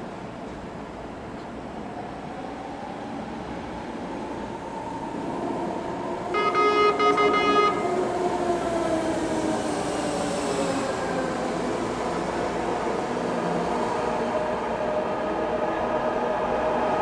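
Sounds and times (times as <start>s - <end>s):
train rumble and whine: 0.0s - 17.0s
train horn: 6.3s - 8.2s.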